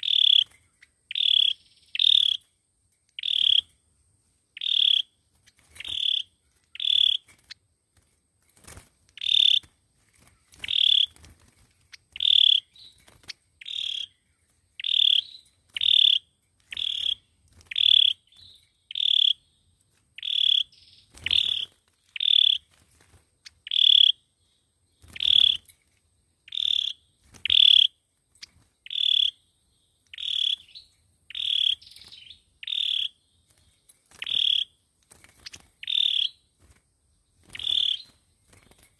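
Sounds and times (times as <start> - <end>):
bird calling with sharp high notes: 0.0 - 2.5, 3.1 - 3.8, 4.6 - 7.6, 9.2 - 11.3, 12.0 - 19.6, 20.2 - 22.7, 23.5 - 25.7, 26.5 - 34.8, 35.4 - 36.5, 37.4 - 38.2.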